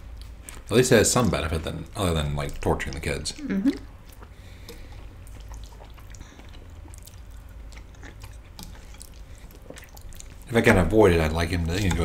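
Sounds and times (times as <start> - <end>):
low steady hum: 0.0 - 12.0
people chewing: 0.0 - 12.0.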